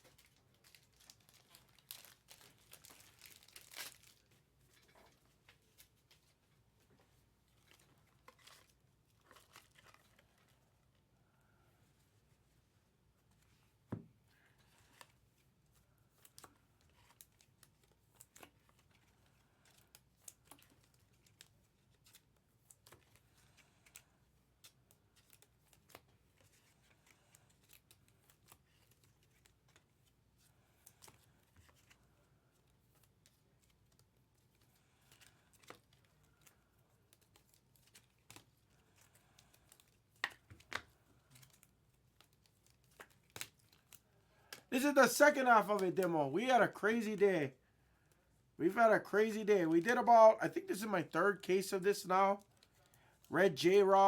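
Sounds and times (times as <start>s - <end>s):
card packs torn and handled: 0.1s - 4.3s, 33.0s - 47.2s.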